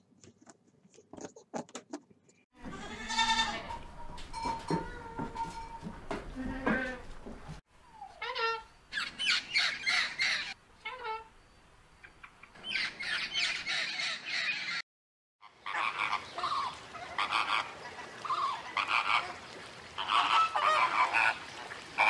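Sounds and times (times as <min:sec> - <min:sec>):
macaw screeching: 0:08.0 - 0:11.2, 0:12.7 - 0:14.8
flock of flamingos calling: 0:15.4 - 0:19.4, 0:20.0 - 0:22.0.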